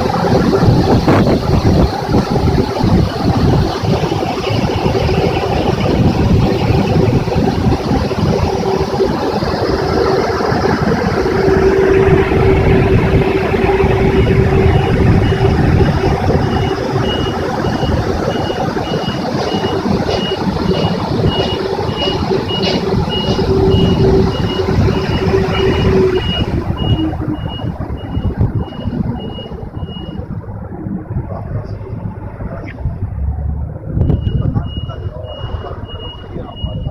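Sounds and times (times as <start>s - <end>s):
car wash machine rushing: 0.0s - 36.9s
motor hum: 0.0s - 36.9s
high warning beeps: 11.2s - 30.3s, 34.0s - 36.9s.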